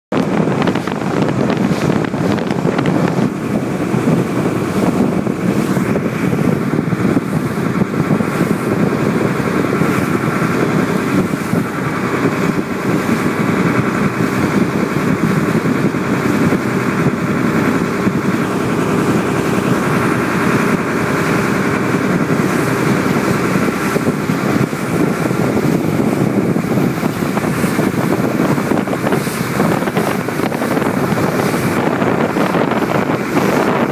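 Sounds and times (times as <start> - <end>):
boat engine running: 0.1 - 33.9.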